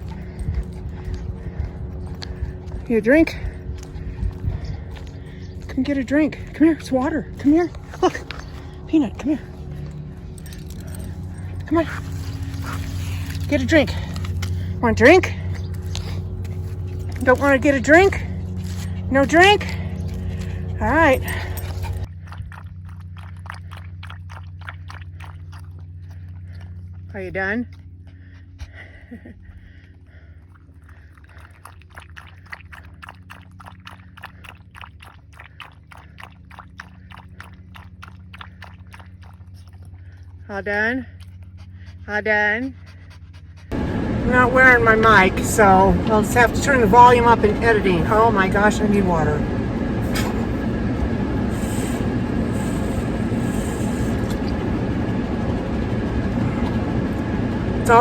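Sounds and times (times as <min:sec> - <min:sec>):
dog lapping water: 0:00.0 - 0:54.8, 0:56.2 - 0:58.0
low steady hum: 0:00.0 - 0:58.0
steady low outdoor noise: 0:43.6 - 0:58.0.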